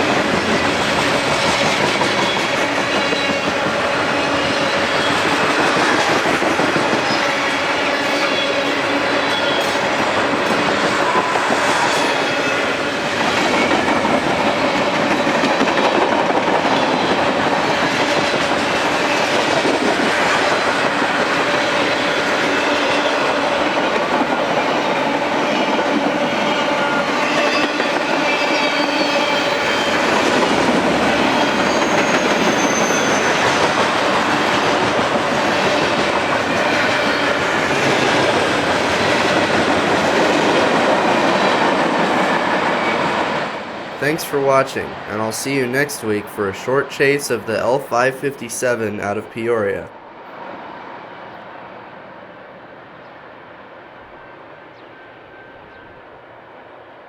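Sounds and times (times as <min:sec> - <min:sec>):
freight train rolling past: 0:00.0 - 0:57.0
faint high wheel squeals: 0:31.4 - 0:33.5.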